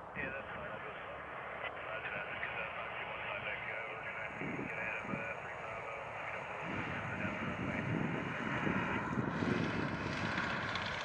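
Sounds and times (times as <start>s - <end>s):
aircraft engine noise: 0.2s - 11.0s
wind buffeting microphone: 6.6s - 11.0s.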